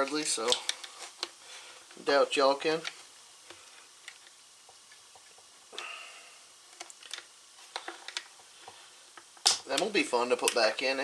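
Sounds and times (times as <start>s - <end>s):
small clicks and rattles of parts: 0.0s - 1.4s, 2.7s - 5.9s, 6.7s - 10.7s.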